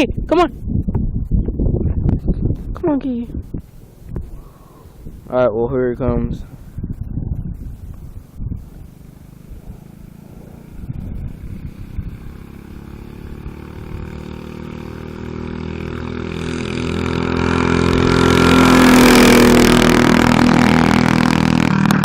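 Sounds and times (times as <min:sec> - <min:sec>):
mini bike engine approaching: 0:06.6 - 0:22.0.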